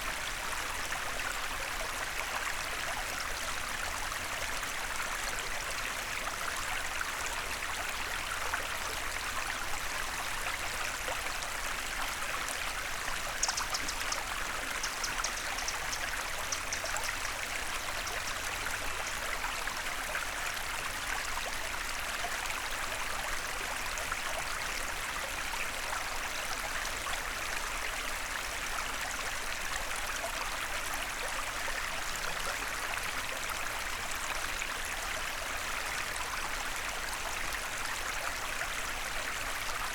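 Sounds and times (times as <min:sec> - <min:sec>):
stream flowing: 0:00.0 - 0:39.9
faint high ticks: 0:13.4 - 0:17.3.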